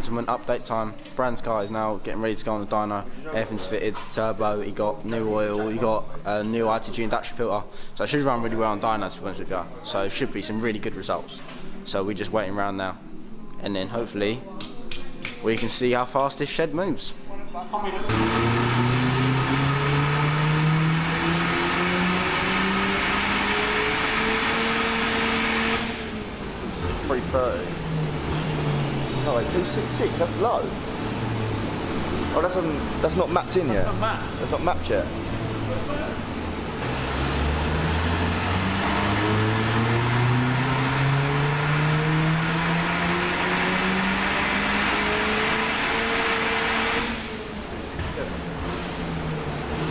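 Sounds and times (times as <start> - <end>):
car engine at full throttle: 18.1 - 49.9.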